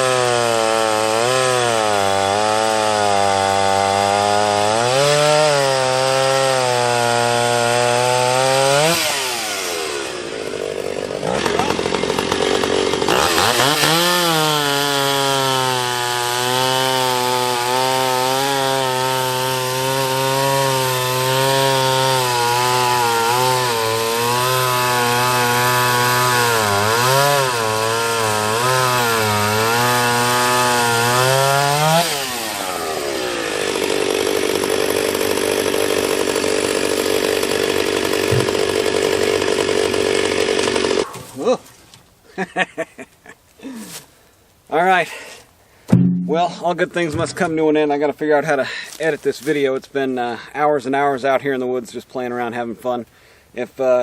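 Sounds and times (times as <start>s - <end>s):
chainsaw cutting wood: 0.0s - 41.6s, 46.0s - 47.6s.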